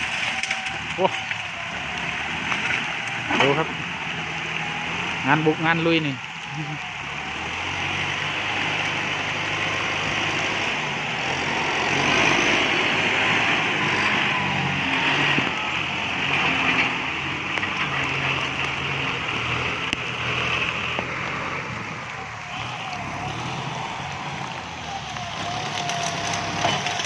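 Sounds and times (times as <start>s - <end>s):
rain hissing: 0.0s - 27.0s
tractor diesel engine under load: 0.0s - 27.0s.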